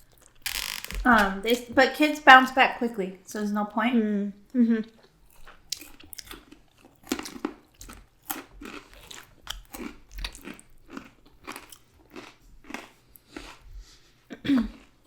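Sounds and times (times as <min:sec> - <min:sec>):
person chewing crunchy food: 0:05.0 - 0:15.0.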